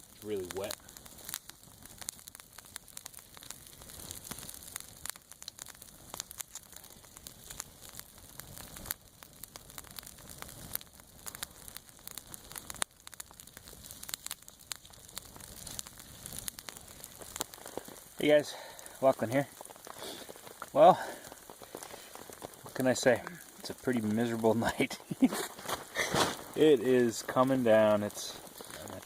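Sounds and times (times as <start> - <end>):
freezing rain ticking on ice: 0.0 - 29.0.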